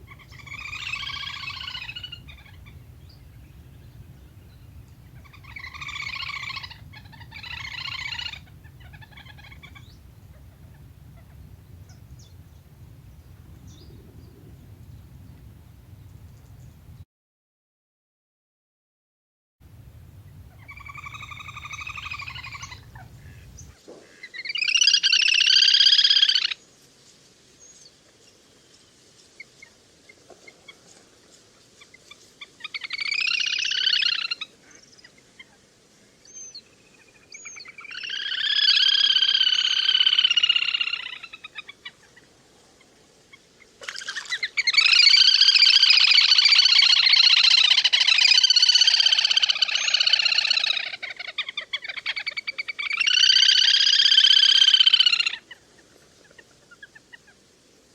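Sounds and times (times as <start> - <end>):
bird trilling calls: 0.0 - 17.0, 20.0 - 26.6, 37.3 - 41.8, 43.8 - 55.6.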